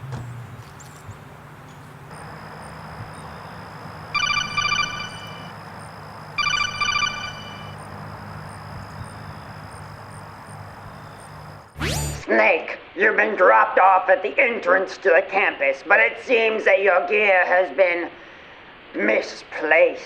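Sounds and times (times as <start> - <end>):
electronic call alert trill: 2.1 - 8.6.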